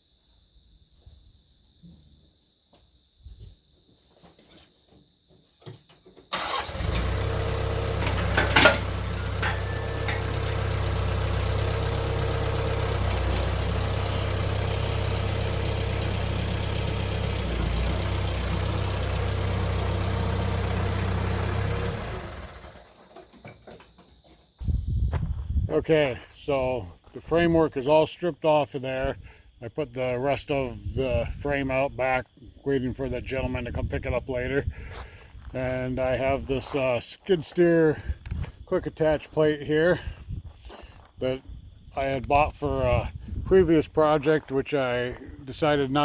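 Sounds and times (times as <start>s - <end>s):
engine starting and running: 6.3s - 24.5s
sharp clunk: 8.0s - 10.3s.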